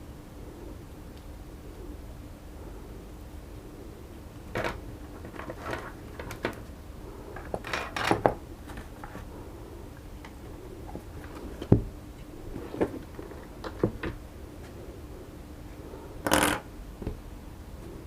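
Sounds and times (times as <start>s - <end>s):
small parts knocking and clicking: 4.5s - 6.7s, 7.4s - 9.2s, 16.2s - 16.6s.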